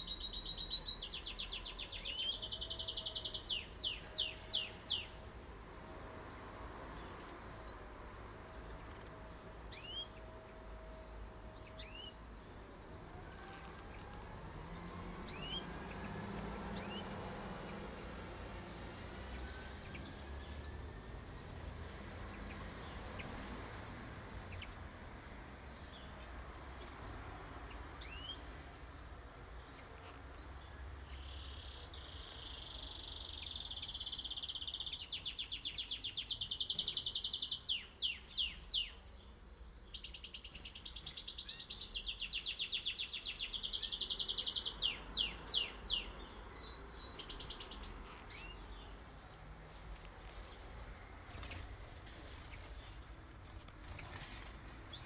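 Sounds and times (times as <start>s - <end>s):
canary singing trills: 0.0s - 5.4s, 8.7s - 18.3s, 26.8s - 49.0s.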